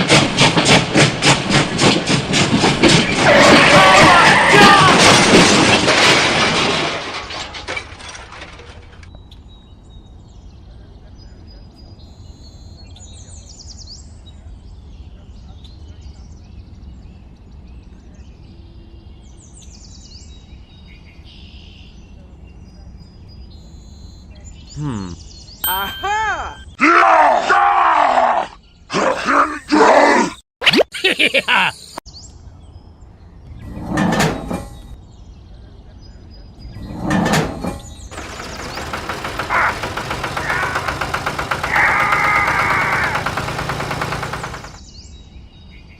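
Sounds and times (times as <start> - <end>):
loud clatter: 0.0 - 9.1, 33.6 - 35.0, 36.8 - 44.8
small engine running: 38.1 - 44.8.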